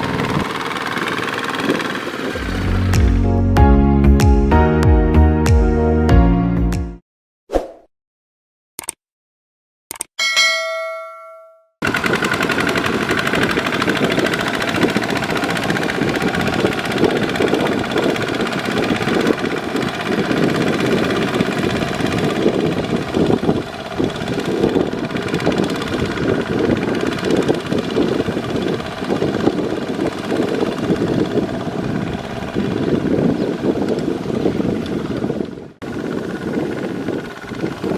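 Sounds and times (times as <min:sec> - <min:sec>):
diesel engine knocking: 0:00.0 - 0:03.3, 0:11.8 - 0:37.9
sharp clicks: 0:08.8 - 0:09.0, 0:09.9 - 0:10.1
ringing ding: 0:10.2 - 0:11.8.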